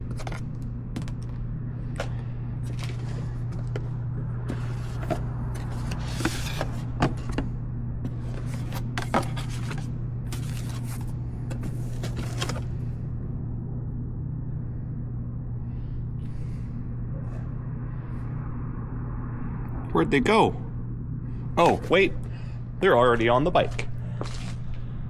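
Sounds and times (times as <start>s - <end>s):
objects being handled: 0.0s - 7.4s, 8.1s - 12.7s
steady low hum: 0.0s - 25.0s.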